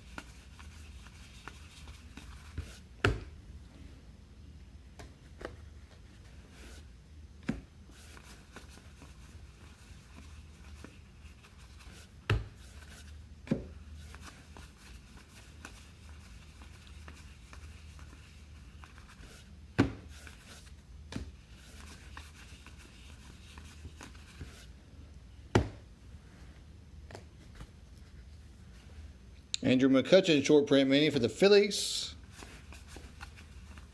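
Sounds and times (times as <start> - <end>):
trading cards rubbing and sliding: 21.4 - 24.8, 32.2 - 33.9.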